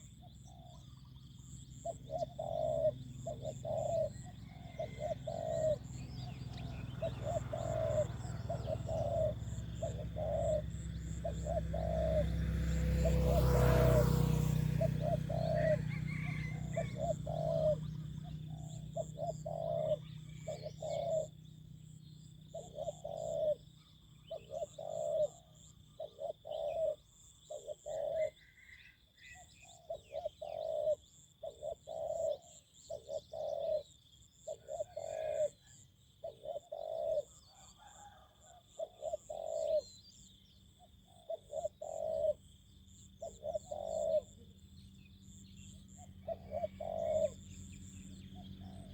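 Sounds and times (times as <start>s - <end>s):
faint high pulsing chirp: 0.0s - 38.2s
dove cooing: 0.0s - 48.9s.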